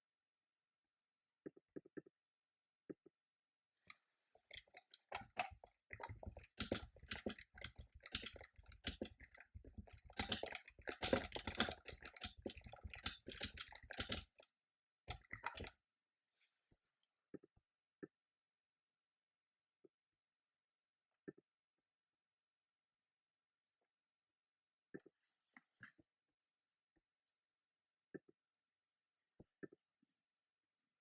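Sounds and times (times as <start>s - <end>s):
typing on computer keyboard: 4.6s - 14.4s, 15.1s - 15.7s.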